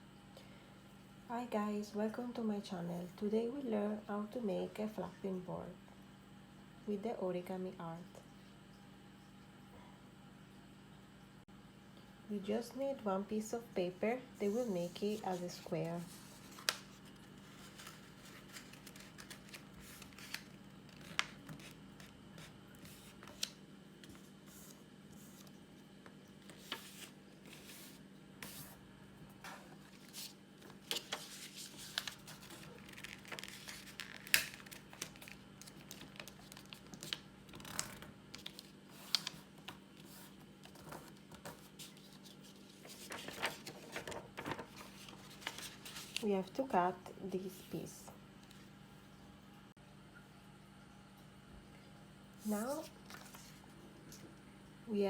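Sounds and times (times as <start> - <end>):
paper rustling and folding: 14.4 - 46.6, 52.4 - 54.3.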